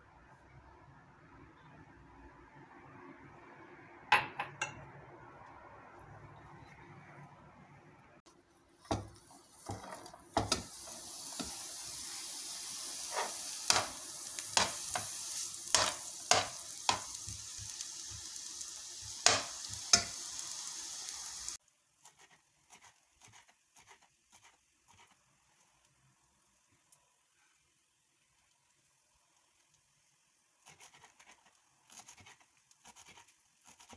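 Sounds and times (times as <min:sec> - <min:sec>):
spoon scraping a pan: 0:08.8 - 0:11.7, 0:12.9 - 0:17.7, 0:19.2 - 0:20.2
greens sizzling in a pan: 0:08.8 - 0:21.8, 0:25.2 - 0:33.6.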